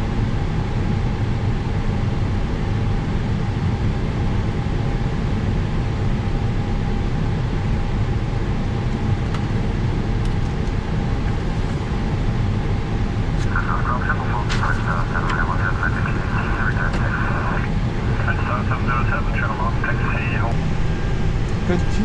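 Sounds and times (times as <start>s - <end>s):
jet engine rumble and hiss: 0.0s - 22.0s
constant tone: 11.1s - 22.0s.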